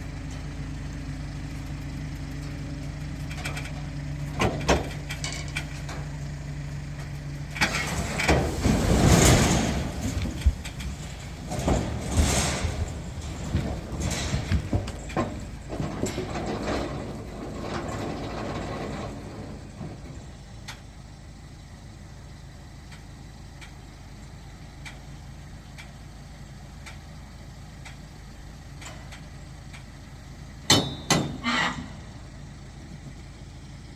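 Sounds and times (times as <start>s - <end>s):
truck engine idling: 0.0s - 33.9s
logs tumbling: 2.8s - 20.6s.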